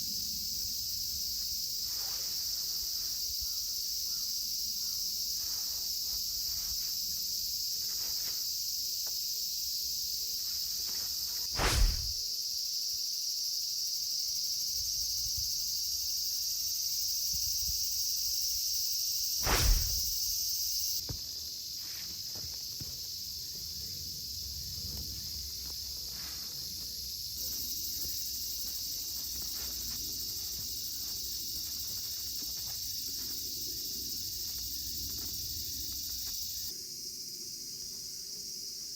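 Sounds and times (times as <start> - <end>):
insects chirring: 0.0 - 38.9
loud short thumps: 11.6 - 12.2, 19.4 - 20.2.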